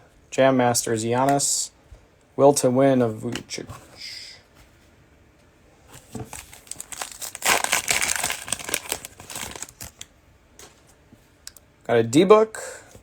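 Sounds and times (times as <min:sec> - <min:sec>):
cellophane wrapper crinkling: 0:06.0 - 0:10.1.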